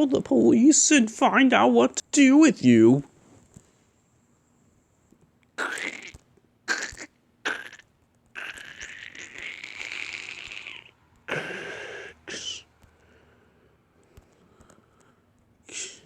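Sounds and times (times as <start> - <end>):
person blowing and hissing: 5.6 - 7.8, 8.4 - 12.7, 15.7 - 16.0.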